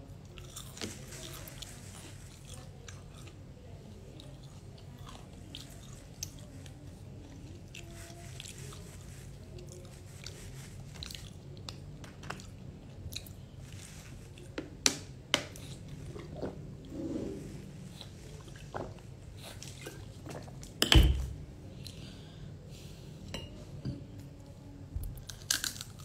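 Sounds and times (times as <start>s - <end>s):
chewing crispy fried food: 0.1s - 14.6s, 25.1s - 26.0s.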